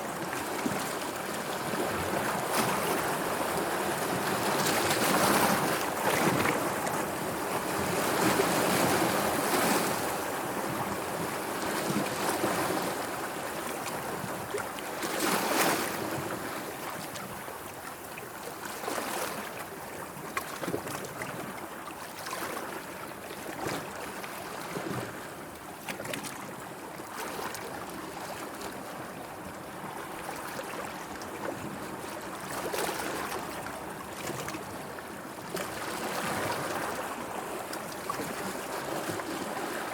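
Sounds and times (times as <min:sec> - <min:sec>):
sea waves washing and splashing: 0:00.0 - 0:22.8.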